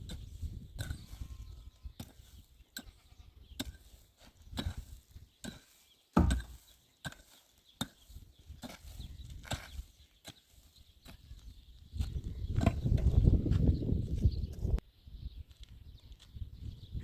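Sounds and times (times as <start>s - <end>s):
sharp knocks: 6.2s - 6.5s.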